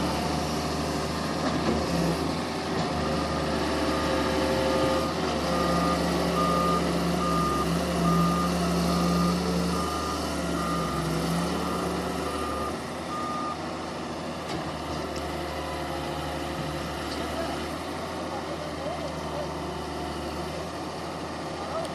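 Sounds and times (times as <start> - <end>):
diesel engine running: 0.0 - 21.9
vehicle travel alarm beeping: 5.5 - 11.0, 11.6 - 13.6.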